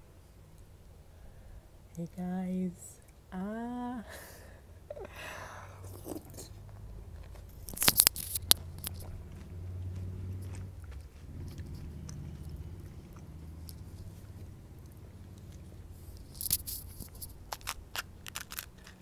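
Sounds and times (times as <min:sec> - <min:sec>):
chewing: 0:05.8 - 0:19.0
sharp crunches: 0:05.9 - 0:19.0.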